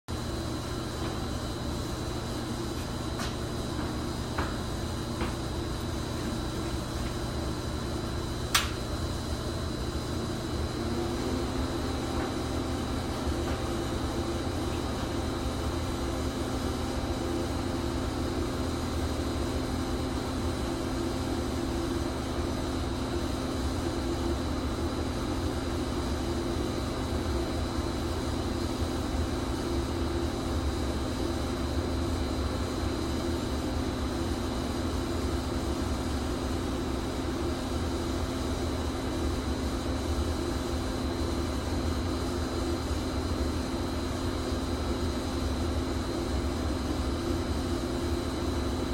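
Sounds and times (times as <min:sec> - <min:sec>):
pipe-thawing machine humming: 0:00.1 - 0:48.9
sharp click: 0:08.5 - 0:08.8.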